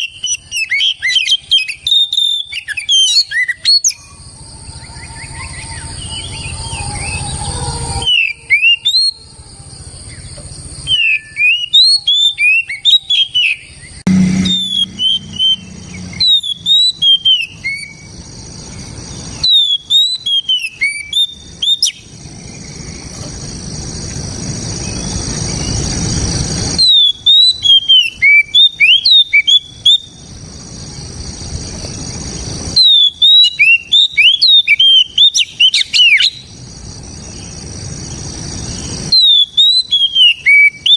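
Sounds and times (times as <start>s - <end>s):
bird singing sharp whistled notes: 0.0s - 4.2s, 10.8s - 18.2s, 18.8s - 23.0s, 26.8s - 30.2s, 32.7s - 36.5s, 38.6s - 40.9s.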